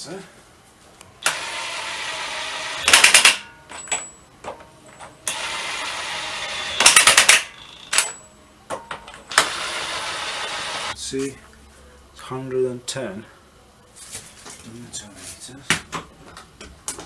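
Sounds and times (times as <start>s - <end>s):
impact wrench tightening bolts: 2.8s - 4.0s, 6.5s - 8.1s.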